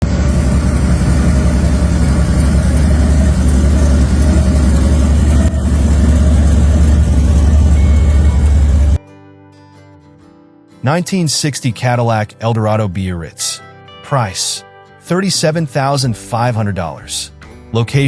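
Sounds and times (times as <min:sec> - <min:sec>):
car engine idling: 0:00.0 - 0:09.0.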